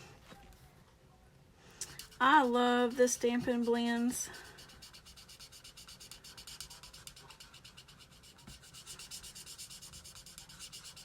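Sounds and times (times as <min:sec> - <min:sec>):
marker rubbing on cardstock: 0:04.4 - 0:11.0.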